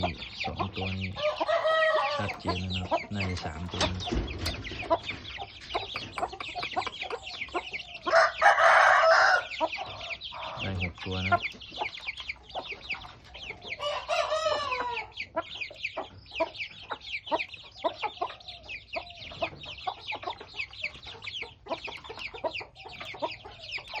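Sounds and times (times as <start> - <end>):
chicks peeping: 0.0 - 24.0
rooster crow: 1.2 - 2.3, 8.0 - 10.5, 13.7 - 15.1.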